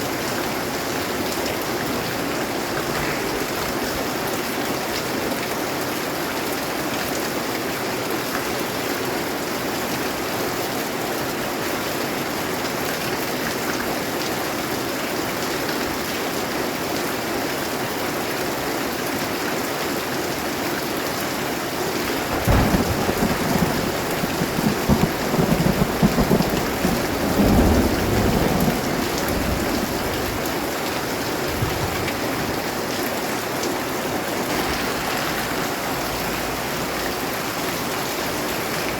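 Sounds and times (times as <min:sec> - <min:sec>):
steady rain falling: 0:00.0 - 0:38.9
rolling thunder: 0:02.0 - 0:04.6, 0:22.0 - 0:32.7, 0:34.4 - 0:38.8.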